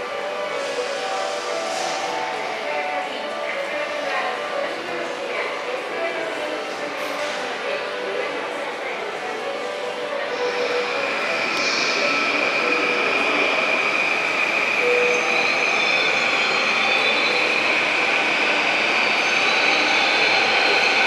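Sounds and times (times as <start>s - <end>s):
train rolling on rails: 0.0s - 21.0s.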